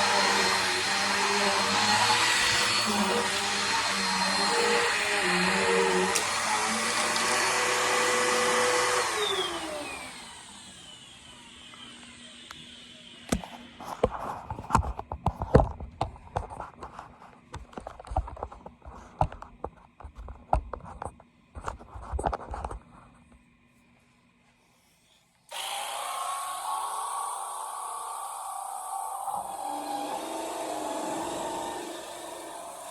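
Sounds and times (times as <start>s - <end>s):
steady whirring: 0.0s - 13.8s, 25.5s - 32.9s
vacuum motor winding down: 0.0s - 13.8s, 25.5s - 32.9s.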